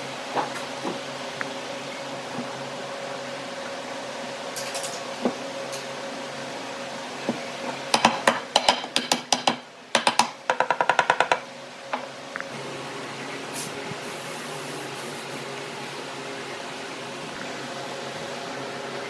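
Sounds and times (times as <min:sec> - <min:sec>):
rapid sharp knocks: 0:08.0 - 0:11.4.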